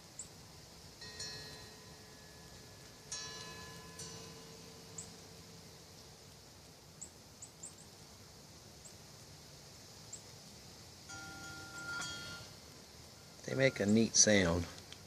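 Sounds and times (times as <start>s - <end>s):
metal wind chimes ringing: 1.0s - 6.0s, 11.1s - 12.6s, 13.2s - 14.7s
high bird chirps: 4.0s - 5.4s.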